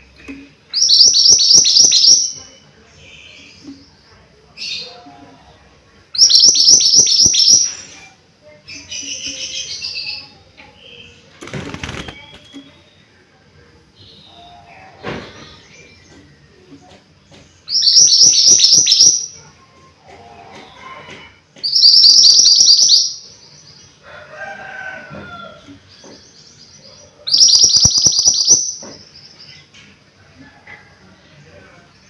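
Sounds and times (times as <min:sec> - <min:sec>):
bird chirps: 0:21.6 - 0:23.3, 0:26.0 - 0:29.6.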